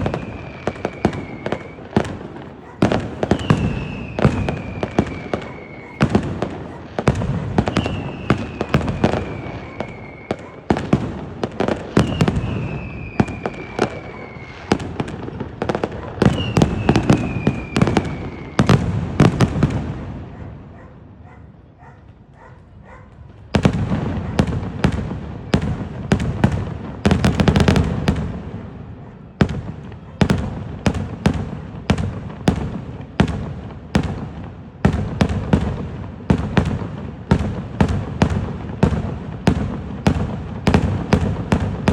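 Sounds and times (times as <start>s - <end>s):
falling firework whistles: 0.0s - 10.9s, 11.6s - 19.5s
firework bangs: 0.0s - 20.8s, 23.1s - 41.9s.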